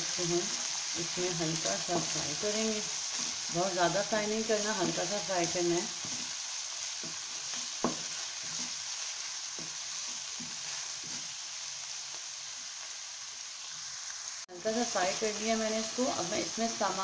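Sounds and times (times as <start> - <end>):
vegetables sizzling in hot oil: 0.0 - 17.0
wooden spatula scraping pan: 1.7 - 6.4, 7.0 - 8.9, 9.6 - 11.4.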